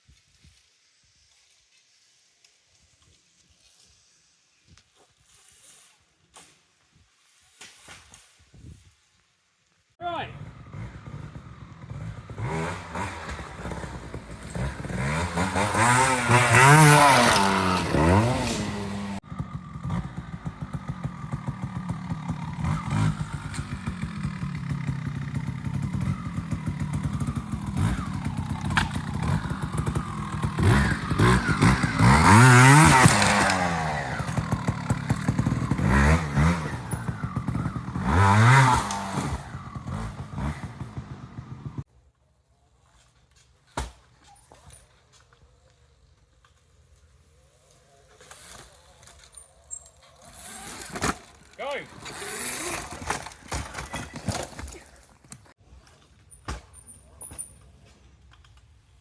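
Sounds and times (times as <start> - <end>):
two-stroke motorcycle engine revving: 10.3 - 41.9, 48.2 - 54.9.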